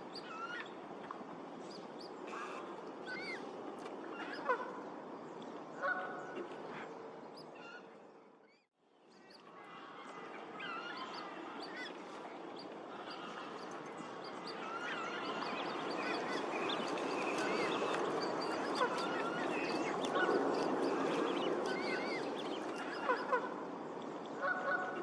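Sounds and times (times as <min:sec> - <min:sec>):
waterfowl calls: 0:05.8 - 0:06.8, 0:14.5 - 0:23.6, 0:24.4 - 0:25.0
geese honking: 0:18.6 - 0:20.3, 0:24.4 - 0:25.0.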